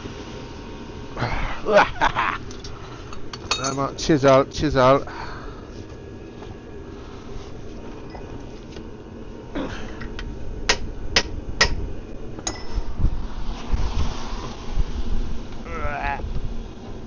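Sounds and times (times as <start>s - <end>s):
hammer striking chisel on metal: 10.7s - 11.8s, 12.5s - 12.8s.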